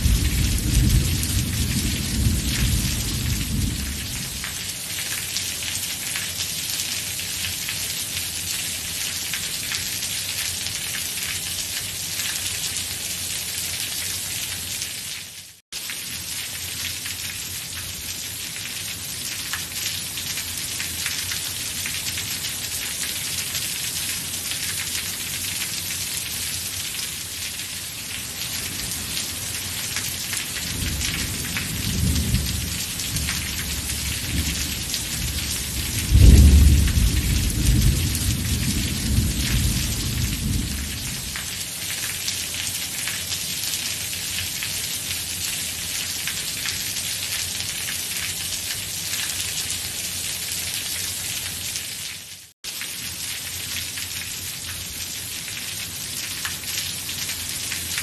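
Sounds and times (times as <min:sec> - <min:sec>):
rolling thunder: 0:00.0 - 0:04.4, 0:30.8 - 0:41.3
steady rain falling: 0:00.0 - 0:58.0.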